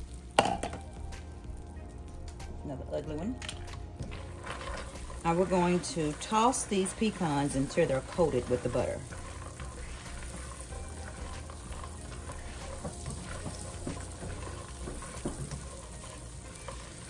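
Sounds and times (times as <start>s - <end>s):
butter sizzling in a pan: 0.0s - 2.6s, 3.7s - 17.0s
spatula scraping a pan: 4.0s - 17.0s.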